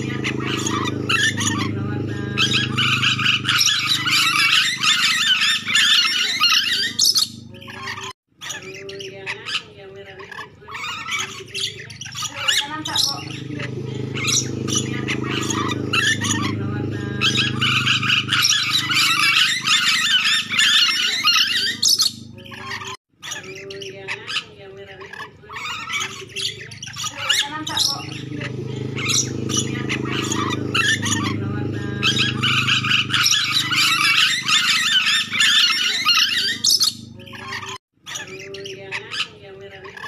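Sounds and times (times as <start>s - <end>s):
low hum: 0.0s - 6.0s, 13.1s - 20.8s, 27.8s - 37.8s
parrot chattering and squawking: 0.0s - 40.0s.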